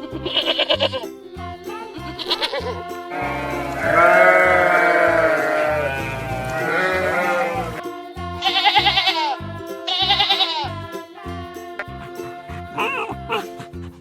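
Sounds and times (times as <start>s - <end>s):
sheep or goat bleating: 0.0s - 1.0s, 2.2s - 7.8s, 8.4s - 10.7s
background music with steady beat: 0.0s - 14.0s.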